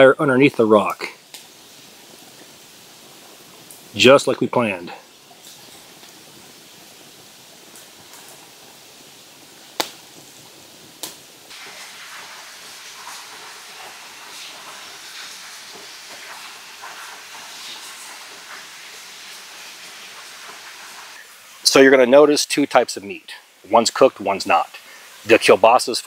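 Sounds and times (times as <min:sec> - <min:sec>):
meat sizzling on hot rock: 0:00.0 - 0:26.0
sharp pops: 0:00.8 - 0:01.6, 0:09.7 - 0:10.4, 0:11.0 - 0:11.8.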